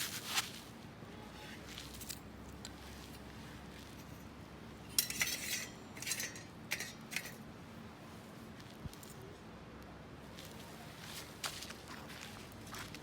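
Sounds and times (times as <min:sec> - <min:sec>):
low steady background noise: 0:00.0 - 0:13.0
metal cookware clinking: 0:04.9 - 0:07.4.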